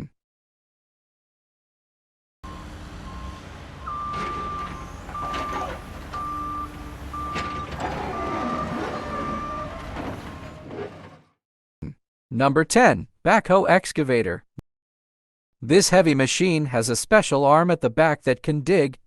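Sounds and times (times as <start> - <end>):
reversing alarm beeping: 2.4 - 10.7
diesel engine rumble: 2.4 - 11.2.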